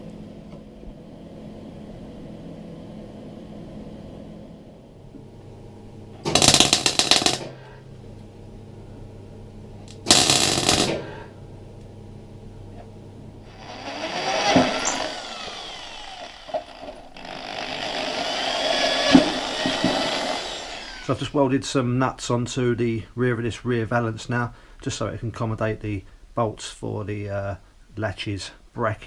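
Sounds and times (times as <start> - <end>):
welding crackle: 6.2 - 7.5, 9.8 - 11.1
rotary power tool on metal: 6.3 - 7.5, 10.1 - 11.0, 13.5 - 21.2.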